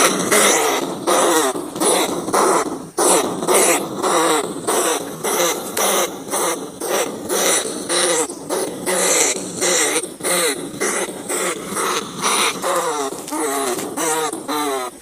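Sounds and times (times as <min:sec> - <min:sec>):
rats squealing and chattering: 0:00.0 - 0:15.0.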